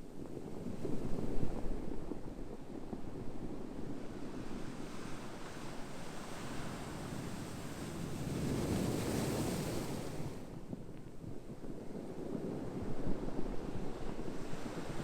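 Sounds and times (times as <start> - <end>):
ocean waves washing ashore: 4.7 - 10.5.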